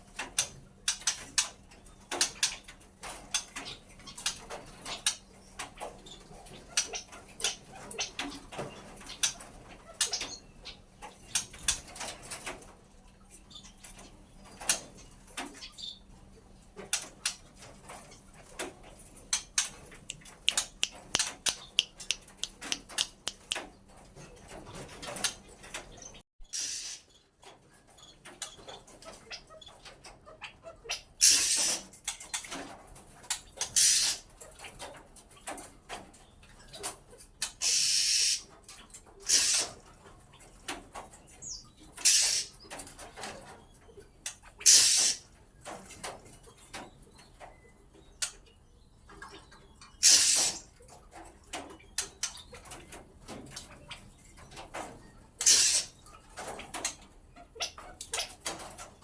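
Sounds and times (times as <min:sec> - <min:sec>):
faint bird chirps and ticks: 0:00.0 - 0:26.2, 0:26.8 - 0:59.0
birds giving harsh calls: 0:19.4 - 0:23.8, 0:26.0 - 0:27.2, 0:30.9 - 0:32.0, 0:33.6 - 0:34.3, 0:37.6 - 0:38.5, 0:39.2 - 0:39.8, 0:41.4 - 0:42.8, 0:44.4 - 0:45.3, 0:50.0 - 0:50.7, 0:55.4 - 0:56.1.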